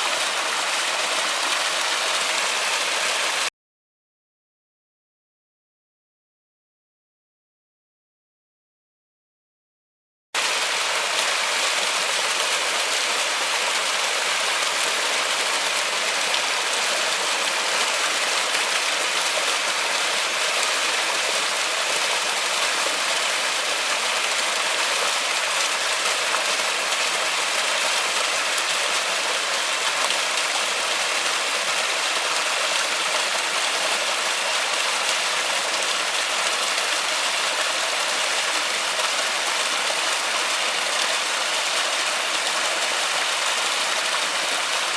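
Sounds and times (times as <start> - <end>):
steady rain falling: 10.4 - 44.9.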